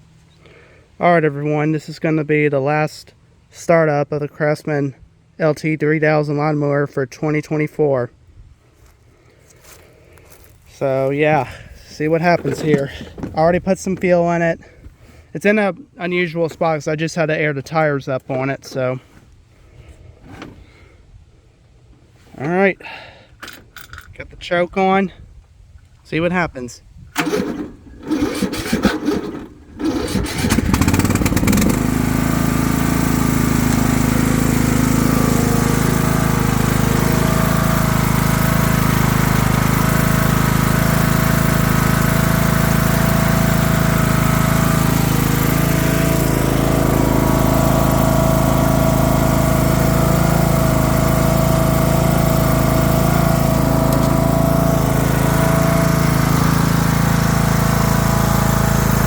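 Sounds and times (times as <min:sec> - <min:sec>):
lawn mower engine running: 0:08.8 - 0:15.3, 0:27.2 - 0:59.0
starter motor cranking: 0:27.2 - 0:59.0.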